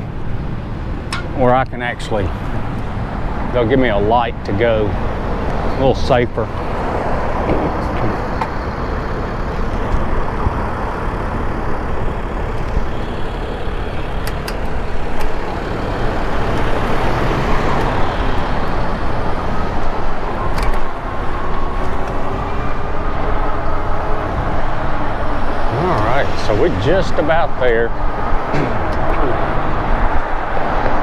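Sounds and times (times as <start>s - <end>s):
road traffic: 0.0s - 31.0s.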